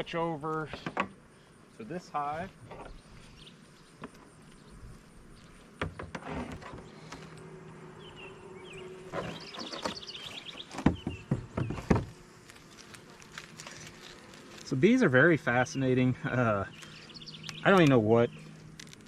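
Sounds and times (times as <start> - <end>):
honeybees humming: 0.0 - 19.0
knocks on wooden beehive: 10.8 - 12.1.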